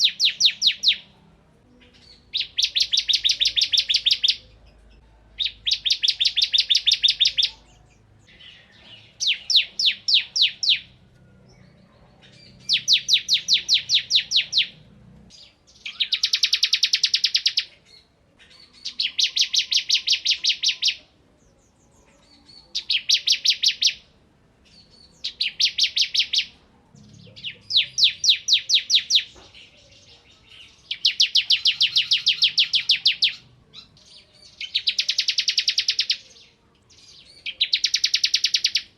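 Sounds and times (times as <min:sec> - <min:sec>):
bird singing rapid high notes: 0:00.0 - 0:01.1, 0:01.8 - 0:04.6, 0:05.4 - 0:18.1, 0:24.7 - 0:29.4, 0:30.0 - 0:36.2, 0:37.0 - 0:38.9.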